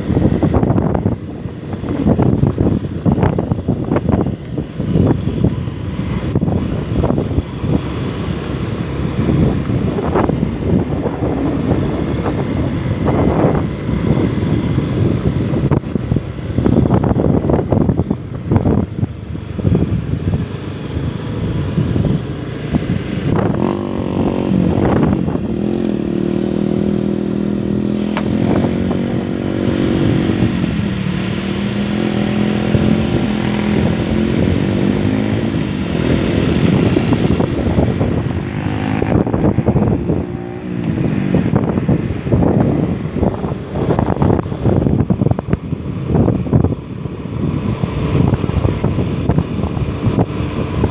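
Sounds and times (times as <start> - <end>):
vehicle engine running: 0.0 - 50.9
wind buffeting microphone: 0.0 - 50.9.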